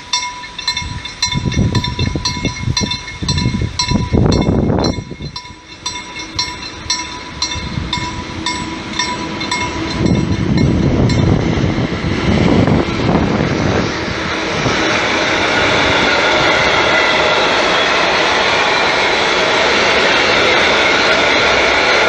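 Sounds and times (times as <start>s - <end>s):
freight wagons rushing and clattering: 0.0s - 11.4s
level crossing bell ringing: 0.0s - 11.4s
locomotive rumble: 0.0s - 22.0s.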